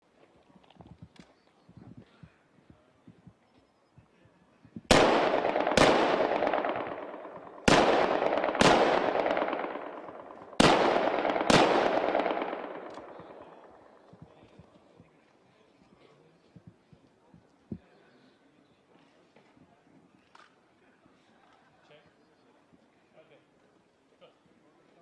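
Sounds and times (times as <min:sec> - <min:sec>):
rifle shots: 0:04.9 - 0:14.1
gunshot echo rolling away: 0:04.9 - 0:14.3.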